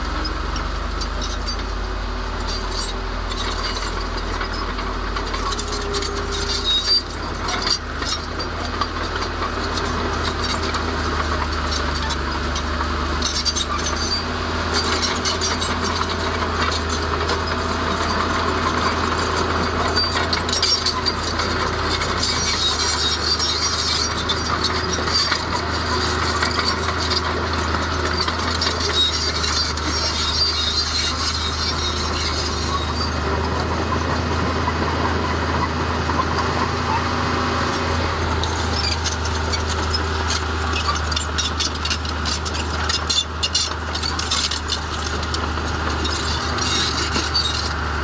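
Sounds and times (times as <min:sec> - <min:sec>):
bulldozer engine humming: 0:00.0 - 0:48.0
tracks rattling and clinking on stone: 0:14.8 - 0:47.8.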